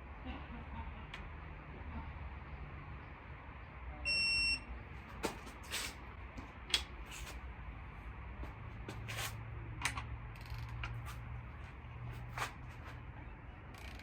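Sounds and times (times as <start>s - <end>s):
torque wrench beep: 4.1s - 4.7s.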